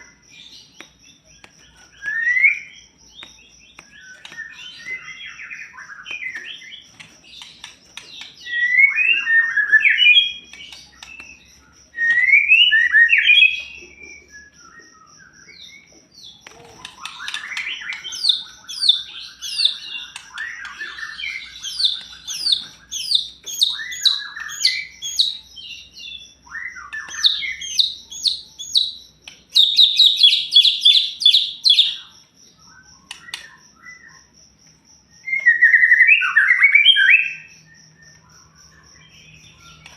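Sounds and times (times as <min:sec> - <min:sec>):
bird repeated downslurred notes: 0:00.0 - 0:34.4
bird singing whistled phrases: 0:16.8 - 0:25.5, 0:35.3 - 0:37.5.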